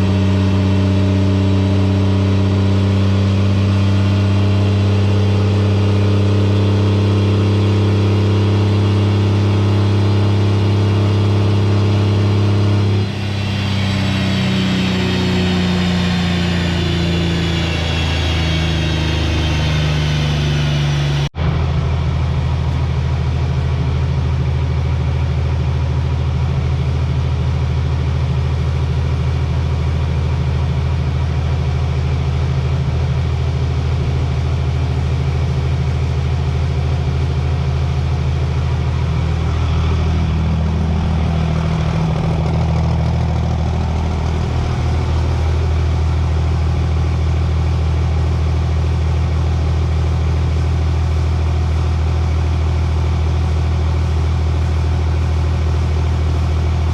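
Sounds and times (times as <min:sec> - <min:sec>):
diesel engine idling: 0:12.7 - 0:23.8, 0:33.1 - 0:56.9.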